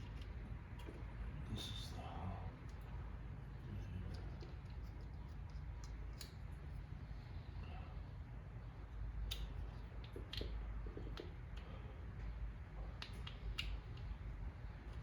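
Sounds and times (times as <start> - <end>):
low steady hum: 0.0 - 15.0
light clicks and taps: 9.2 - 12.3, 12.9 - 14.2.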